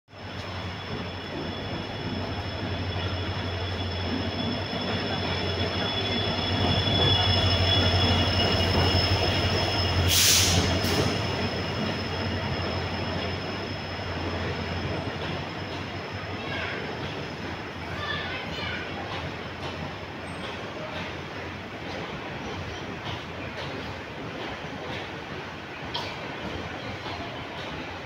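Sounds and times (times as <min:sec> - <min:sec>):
high wheel squeal: 0:00.2 - 0:17.5
short bursts of hiss: 0:10.1 - 0:11.2.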